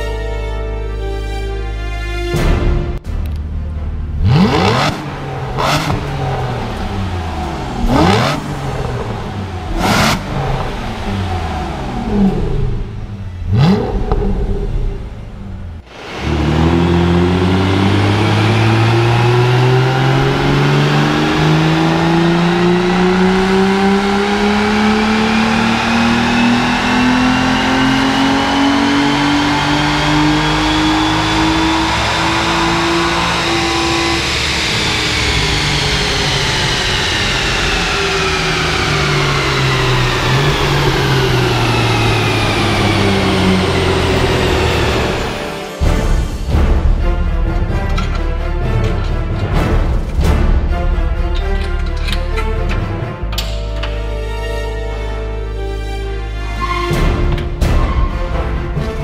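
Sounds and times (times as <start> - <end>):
car engine revving on a dyno: 4.2 - 45.6.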